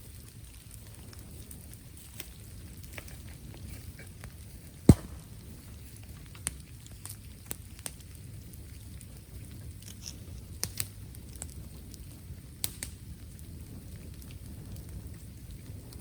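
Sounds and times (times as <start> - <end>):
bamboo fire crackling: 0.0 - 16.0
low steady rumble: 4.9 - 5.9.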